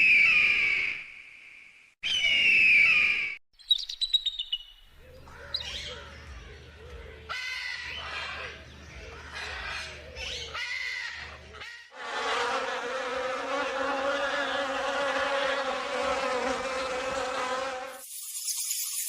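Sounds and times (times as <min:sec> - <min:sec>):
flying insect buzzing: 0:13.0 - 0:19.0.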